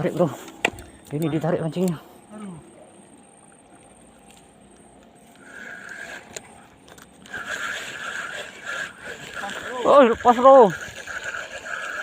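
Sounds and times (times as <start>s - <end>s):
fishing reel buzzing: 5.2s - 12.0s.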